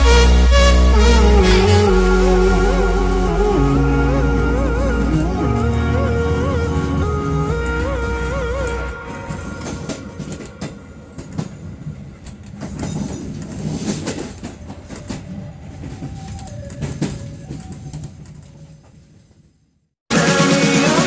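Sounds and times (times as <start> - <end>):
train rumbling on rails: 8.2 - 19.4.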